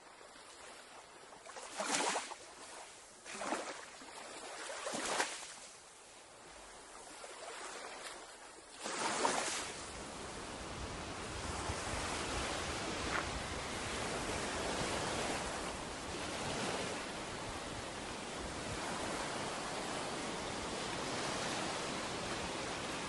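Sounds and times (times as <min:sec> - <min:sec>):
ocean surf washing onto beach: 0:08.8 - 0:23.0.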